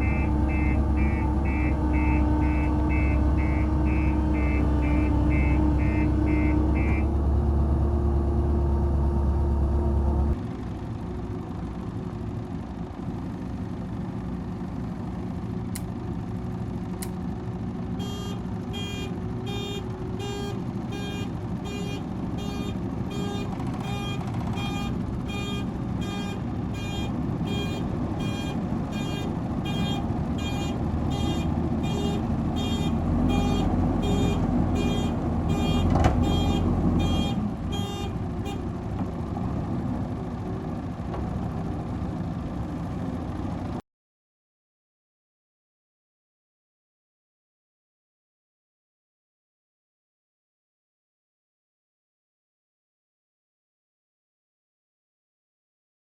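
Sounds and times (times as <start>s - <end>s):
reversing alarm beeping: 0.0s - 7.1s, 18.0s - 38.1s
diesel engine running: 0.0s - 43.8s.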